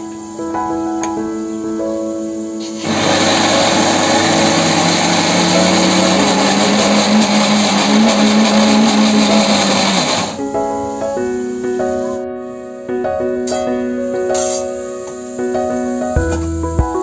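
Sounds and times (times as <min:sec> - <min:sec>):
mixer grinder motor running: 0:02.8 - 0:10.4.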